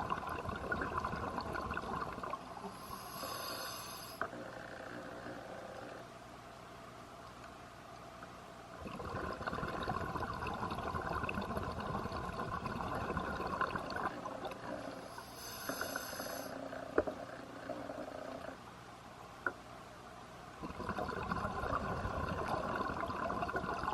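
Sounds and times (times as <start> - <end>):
exhaled bubbles burbling underwater: 0.0 - 2.6, 8.8 - 15.1, 20.6 - 23.9
hissing inhalation through regulator: 2.6 - 4.3, 14.8 - 16.6.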